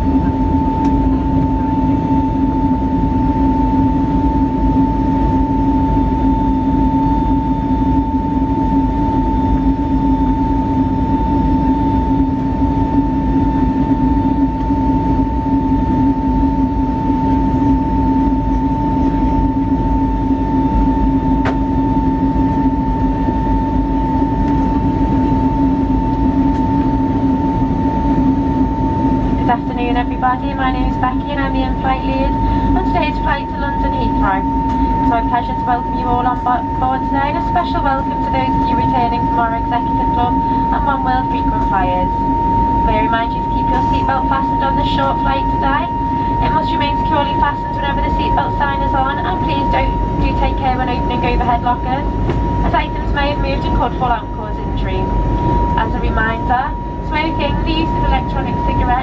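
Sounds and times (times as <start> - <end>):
airplane cabin engine drone: 0.0 - 59.0
mid-pitched whine: 0.0 - 59.0.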